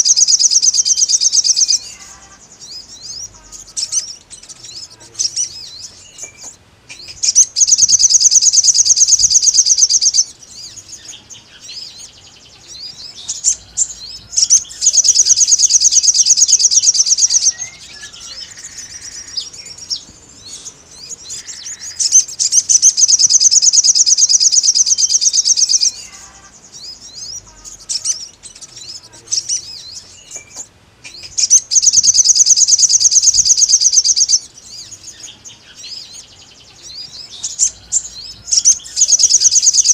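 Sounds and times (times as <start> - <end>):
bird chirps: 0.0 - 39.9
bird trilling: 0.0 - 39.9.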